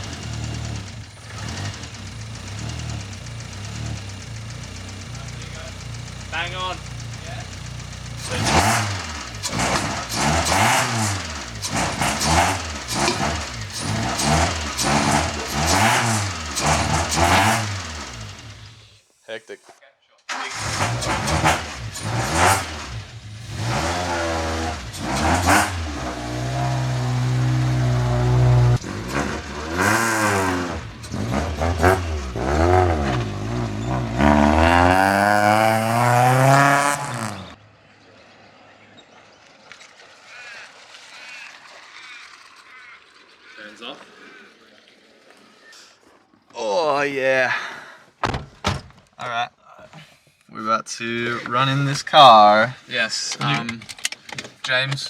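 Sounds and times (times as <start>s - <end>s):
car engine revs blipping: 0.0s - 19.0s, 20.3s - 37.6s.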